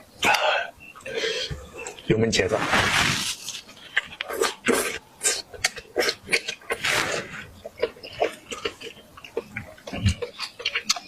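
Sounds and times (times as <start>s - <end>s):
chewing and mouth smacking: 3.8s - 6.9s, 7.6s - 11.0s.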